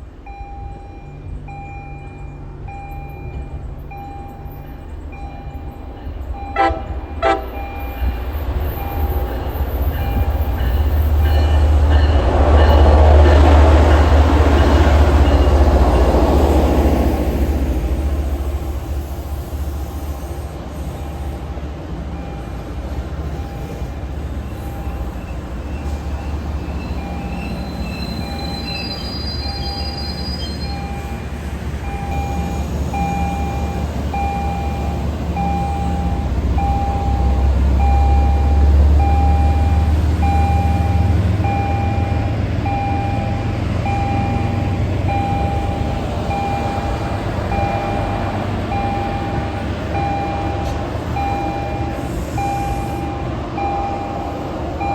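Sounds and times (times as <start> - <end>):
diesel locomotive engine rumble: 0.0 - 54.9
warning bell dinging: 31.8 - 54.9.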